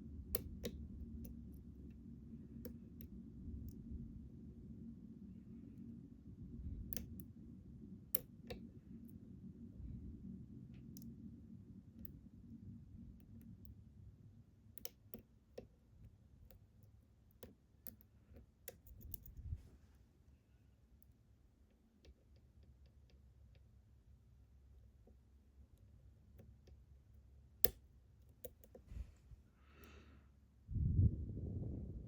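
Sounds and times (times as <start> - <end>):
metallic lock picking clicks: 14.8 - 15.7, 17.3 - 19.4.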